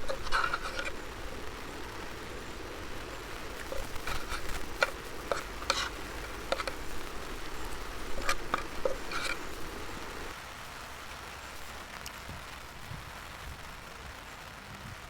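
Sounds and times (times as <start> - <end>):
background hiss: 0.0 - 15.0
light clicks and taps: 3.1 - 10.3.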